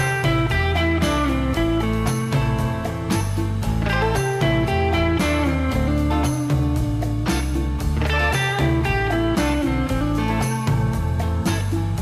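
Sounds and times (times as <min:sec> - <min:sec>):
guitar-led music with beat: 0:00.0 - 0:12.0.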